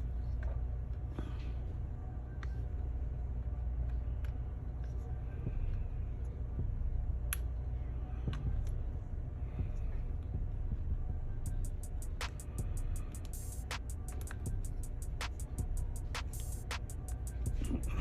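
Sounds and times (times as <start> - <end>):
steady low hum: 0.0 - 18.0
small parts and tools clicking: 13.1 - 17.8.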